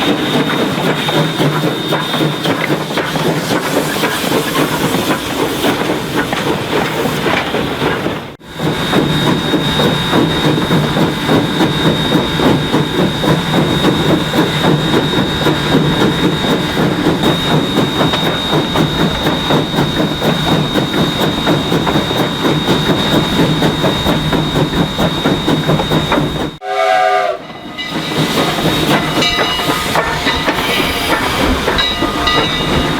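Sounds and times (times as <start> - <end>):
steam hiss: 0.0 - 7.3, 27.6 - 32.9
steam train rumbling and clattering: 0.0 - 32.9
train clanking: 0.0 - 32.9
steam whistle: 26.6 - 32.9.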